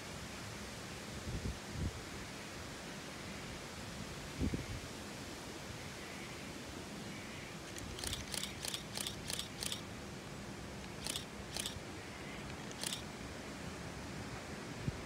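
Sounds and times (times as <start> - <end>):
background hiss: 0.0 - 15.0
sharp high-pitched clicks: 7.7 - 9.9, 10.8 - 11.8, 12.4 - 13.0.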